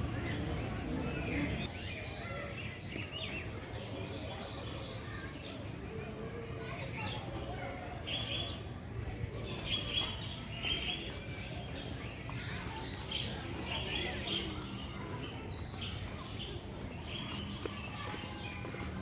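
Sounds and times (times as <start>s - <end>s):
birds chirping: 8.0s - 19.0s.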